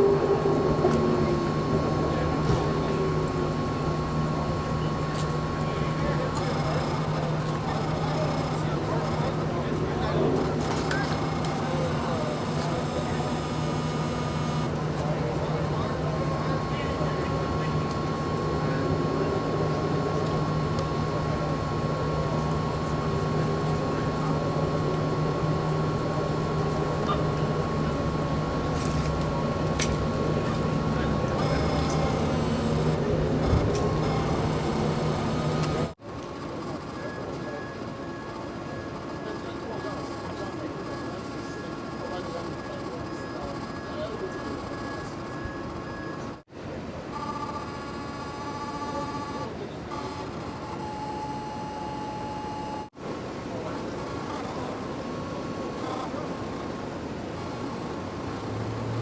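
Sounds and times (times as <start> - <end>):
vehicle engines idling: 0.0 - 36.0
street noise: 0.0 - 59.0
thin steady whine: 0.0 - 59.0.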